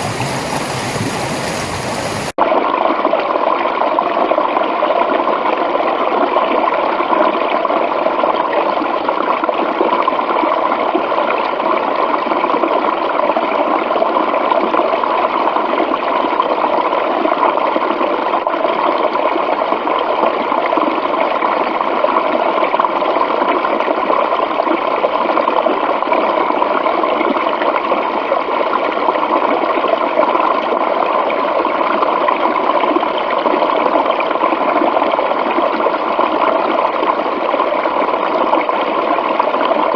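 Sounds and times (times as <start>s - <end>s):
water rushing: 0.0s - 2.4s.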